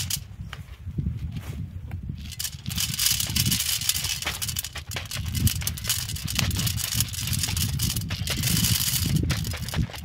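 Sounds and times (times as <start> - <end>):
planter knocking and rattling: 2.2 - 10.0.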